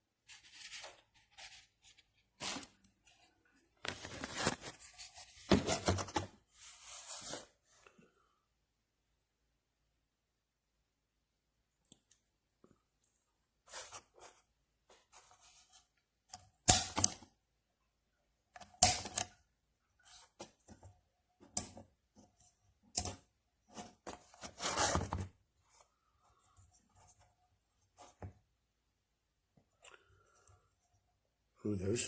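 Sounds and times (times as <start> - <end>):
rustling scrape: 3.9 - 7.6.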